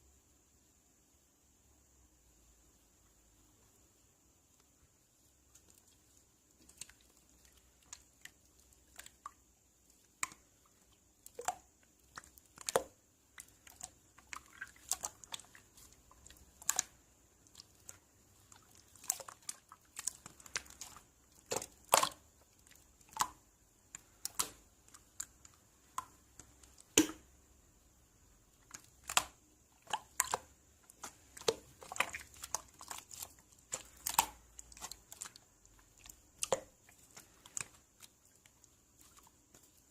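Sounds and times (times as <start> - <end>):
faint steady hiss: 0.0 - 39.9
small clicks and crackles: 28.6 - 39.9.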